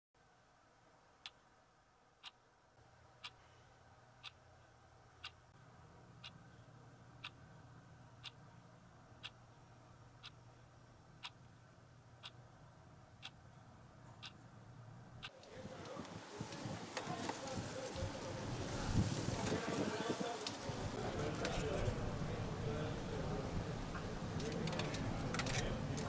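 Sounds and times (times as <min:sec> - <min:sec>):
low steady hum: 0:00.2 - 0:16.4
clock ticking: 0:05.2 - 0:05.5, 0:10.2 - 0:10.4, 0:11.2 - 0:11.5, 0:13.2 - 0:13.4.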